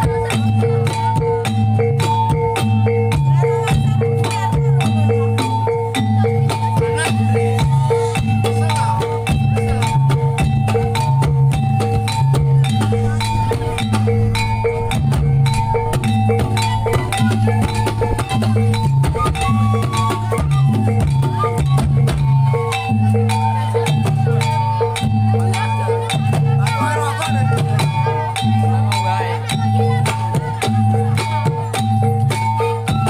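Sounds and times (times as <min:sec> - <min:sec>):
drum strokes: 0:00.0 - 0:33.0
low held tone: 0:07.4 - 0:23.3
metallic two-note figure: 0:09.2 - 0:22.1.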